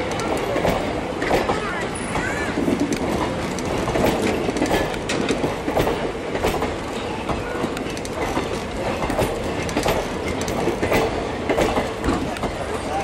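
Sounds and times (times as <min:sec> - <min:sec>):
train coaches rolling on rails: 0:00.0 - 0:13.0
wheels clicking over rail joints: 0:00.0 - 0:13.0.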